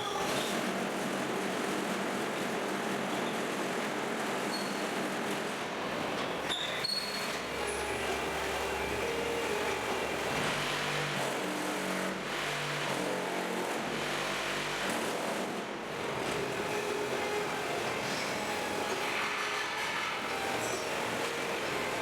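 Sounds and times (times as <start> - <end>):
block-making machine drone: 6.1 - 22.0.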